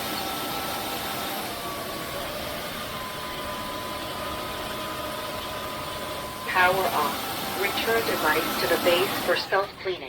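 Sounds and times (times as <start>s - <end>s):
vacuum mop motor whooshing: 0.0s - 10.0s.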